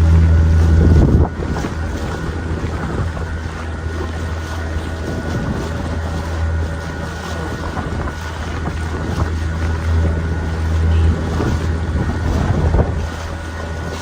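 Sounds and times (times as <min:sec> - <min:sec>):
motorboat engine humming: 0:00.0 - 0:14.0
water rushing past hull: 0:00.0 - 0:14.0
wind on microphone: 0:00.0 - 0:14.0.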